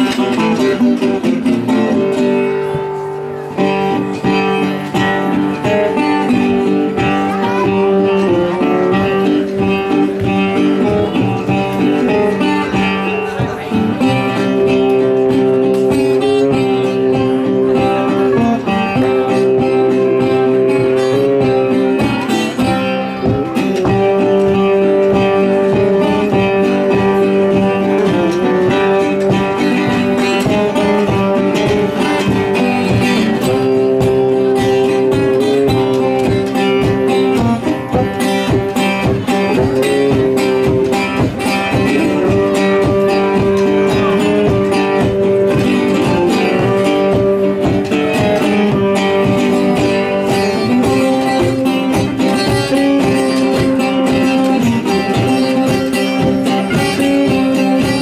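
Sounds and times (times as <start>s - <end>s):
acoustic string band playing: 0.0s - 58.0s.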